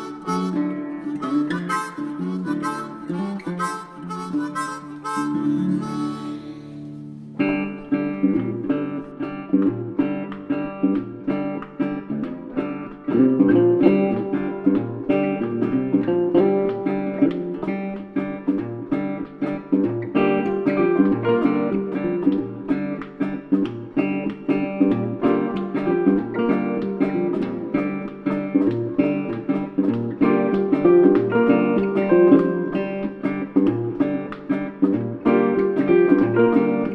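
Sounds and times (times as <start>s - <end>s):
country acoustic guitar strumming: 0.0s - 36.9s.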